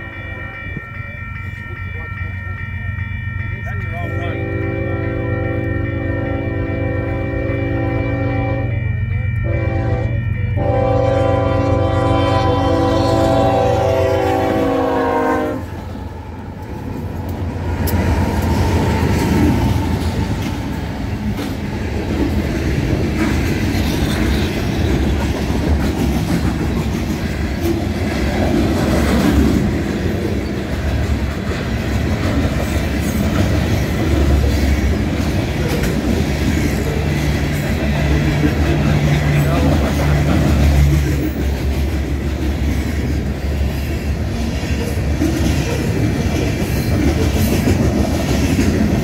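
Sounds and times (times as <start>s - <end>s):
train rumbling past: 0.0s - 49.0s
locomotive horn: 4.2s - 8.8s, 9.4s - 15.8s.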